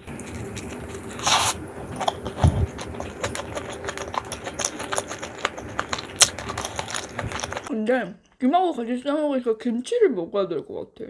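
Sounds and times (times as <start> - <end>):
crinkly rustle: 0.0 - 7.7
crunchy chewing: 0.0 - 7.7.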